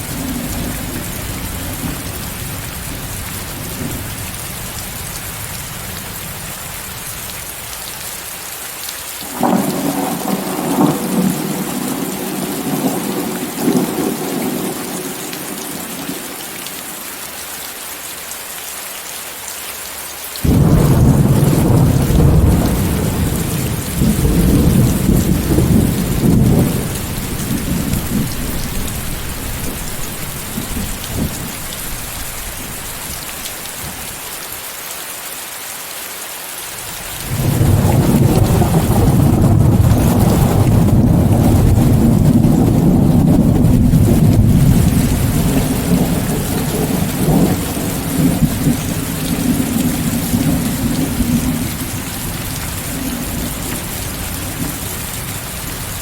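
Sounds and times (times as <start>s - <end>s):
heavy rain: 0.0s - 56.0s
rolling thunder: 9.3s - 16.2s, 20.4s - 33.1s, 37.2s - 55.3s.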